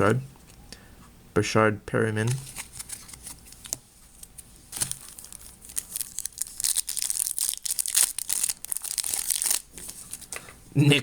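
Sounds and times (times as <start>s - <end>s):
foil wrapper crinkling and tearing: 4.7s - 10.4s.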